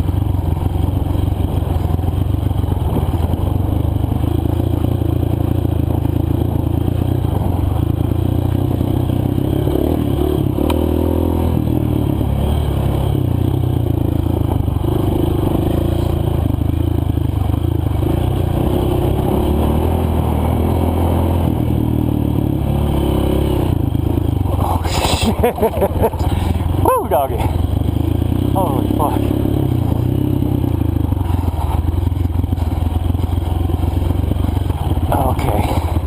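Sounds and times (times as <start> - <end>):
rattling over rough ground: 0.0 - 9.5, 13.2 - 19.0, 23.6 - 36.0
dirt bike engine revving: 8.8 - 13.5, 17.9 - 36.0.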